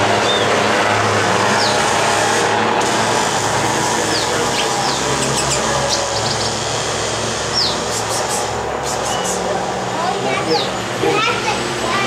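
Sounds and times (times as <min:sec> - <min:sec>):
city traffic hum: 0:00.0 - 0:12.0
bird chirps: 0:04.1 - 0:06.6, 0:07.5 - 0:09.5.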